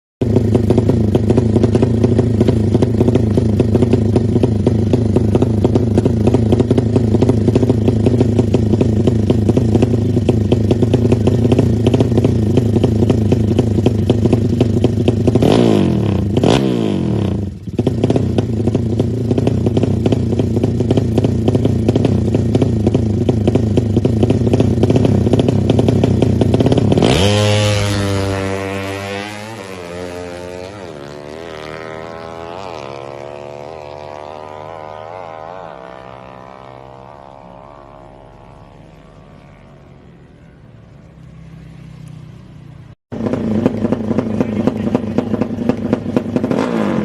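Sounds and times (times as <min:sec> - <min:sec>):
motorcycle engine fast idle: 0:43.2 - 0:46.4.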